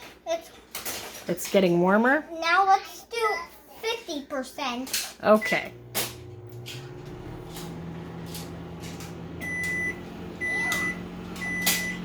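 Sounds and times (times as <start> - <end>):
microwave oven humming: 5.4 - 12.0
high beeps: 9.4 - 12.0.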